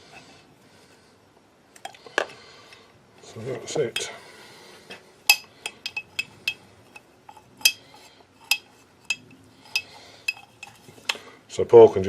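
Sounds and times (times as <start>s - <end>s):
steel parts clinking on metal: 5.3s - 7.8s, 8.4s - 10.8s.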